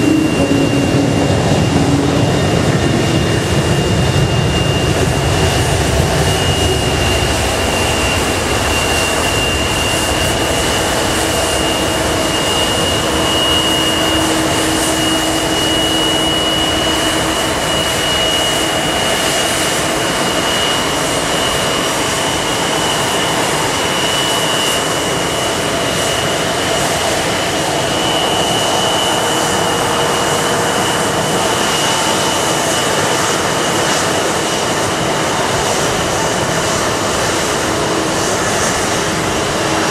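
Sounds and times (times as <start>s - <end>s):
low rumble: 0.0s - 8.8s
jet engines inside cabin: 0.0s - 39.9s.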